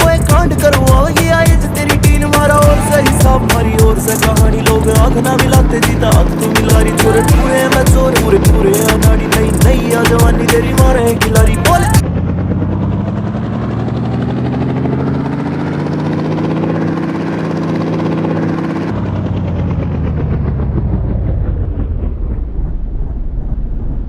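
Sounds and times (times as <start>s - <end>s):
helicopter engine and rotor: 12.0s - 22.5s.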